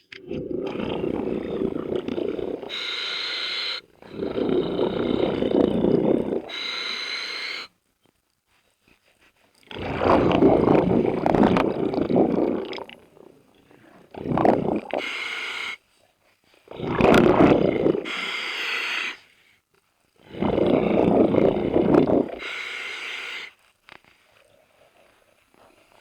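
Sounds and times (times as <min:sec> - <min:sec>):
rumbling rush of bubbles: 0:00.2 - 0:02.9, 0:04.0 - 0:06.5, 0:09.7 - 0:15.0, 0:16.7 - 0:18.1, 0:20.3 - 0:22.4
regulator inhale hiss: 0:02.7 - 0:04.9, 0:06.4 - 0:07.7, 0:18.0 - 0:19.6.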